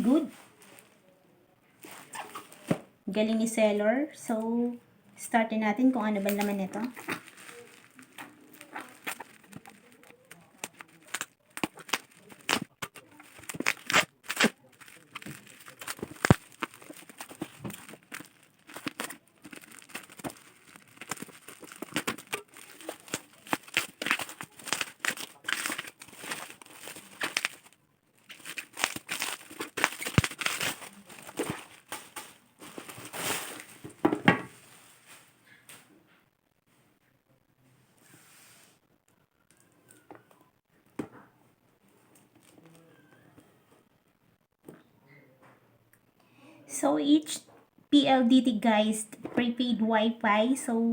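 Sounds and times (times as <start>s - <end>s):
plastic wrapping crinkling and tearing: 0.0s - 1.0s, 1.8s - 2.8s, 5.9s - 35.9s, 42.2s - 43.0s.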